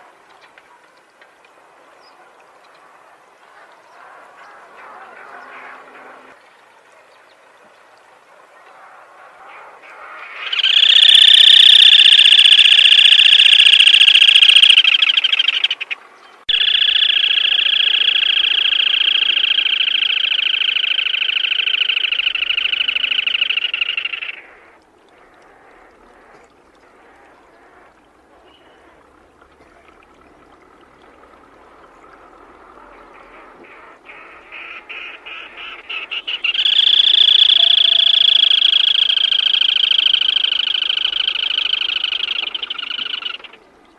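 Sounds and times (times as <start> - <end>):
bird trilling: 10.4 - 24.6, 35.3 - 43.6.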